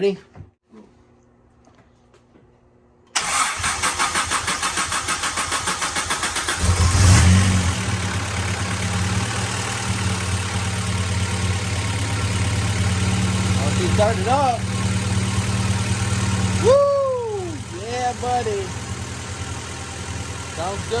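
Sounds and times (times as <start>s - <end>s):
engine cranking by starter: 3.1s - 10.4s
car engine revving and idling: 4.2s - 21.0s.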